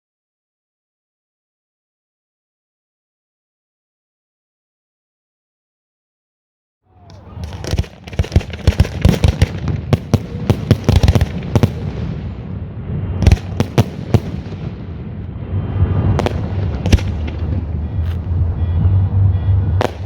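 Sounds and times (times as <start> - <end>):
fireworks bangs and booms: 7.2 - 20.0
steady low rumble: 9.6 - 20.0.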